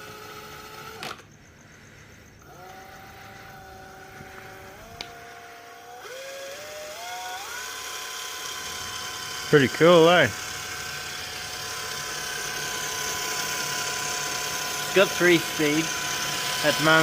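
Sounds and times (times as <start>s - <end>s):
electric boat motor whining: 0.0s - 17.0s
motor click: 4.3s - 5.2s.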